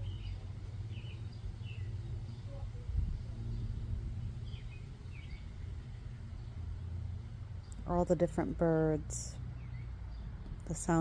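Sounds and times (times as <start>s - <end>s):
bird chirps: 0.0s - 3.8s, 4.4s - 5.5s
distant vehicles: 0.0s - 11.0s
wind: 0.0s - 11.0s.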